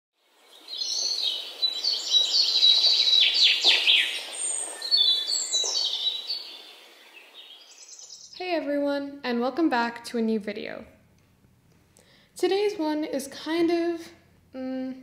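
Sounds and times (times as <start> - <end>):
birds chirping and whistling: 0.5 - 8.4.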